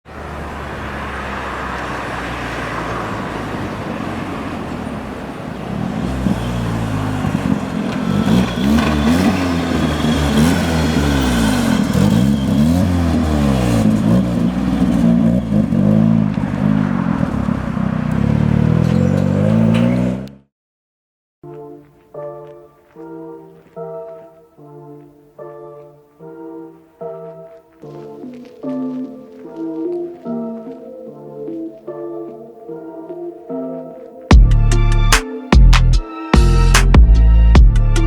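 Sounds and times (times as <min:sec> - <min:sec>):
car engine idling and revving: 0:00.1 - 0:20.5.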